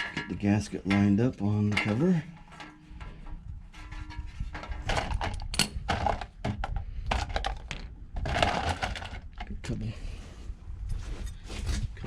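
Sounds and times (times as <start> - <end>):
metal parts knocking and clicking: 4.6 - 9.5.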